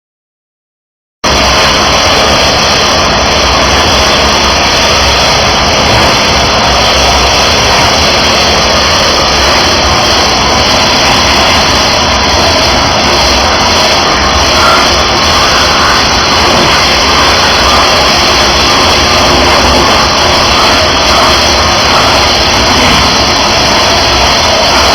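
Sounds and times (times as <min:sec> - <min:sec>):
pressure washer engine and pump: 0:01.2 - 0:24.9
water spray hissing: 0:13.5 - 0:24.9.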